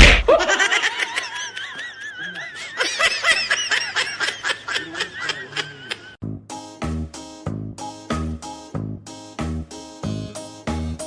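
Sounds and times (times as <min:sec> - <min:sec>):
high-pitched laughter: 0:00.3 - 0:06.2
music: 0:06.2 - 0:11.0.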